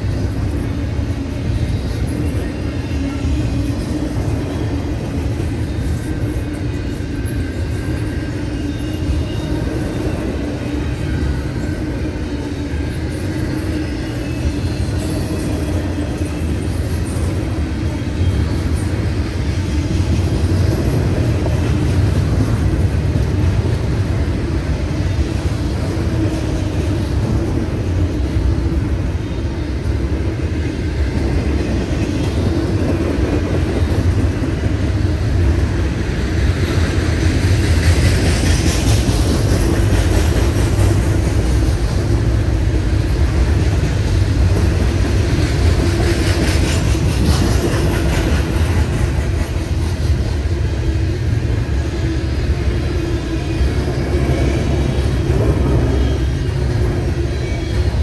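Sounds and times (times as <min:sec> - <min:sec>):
steel wheels rumbling on rail: 0:00.0 - 0:58.0.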